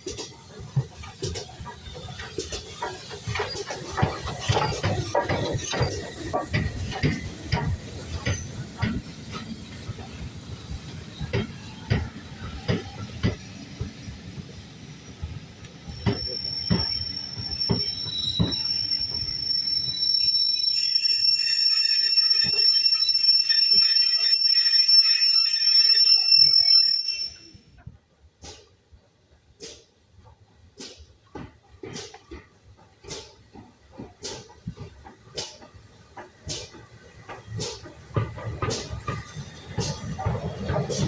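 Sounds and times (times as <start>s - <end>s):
train wheels clicking over rail joints: 0.0s - 24.2s, 28.3s - 41.0s
metallic wheel squeal: 15.9s - 27.6s.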